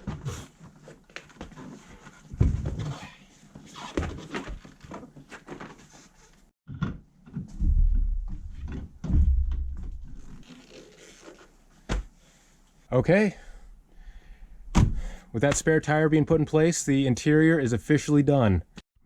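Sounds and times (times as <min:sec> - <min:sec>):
heavy thuds with low rumble: 0:07.5 - 0:10.3.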